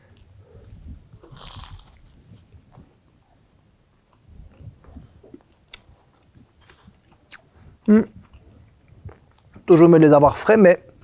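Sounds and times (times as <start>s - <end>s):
faint chewing: 0.1s - 9.7s
crunch of biting pastry: 1.2s - 2.9s.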